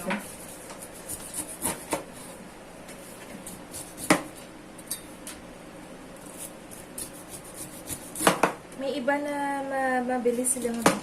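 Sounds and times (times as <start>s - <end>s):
knife peeling pineapple: 0.0s - 2.4s, 3.0s - 4.4s, 6.1s - 8.6s.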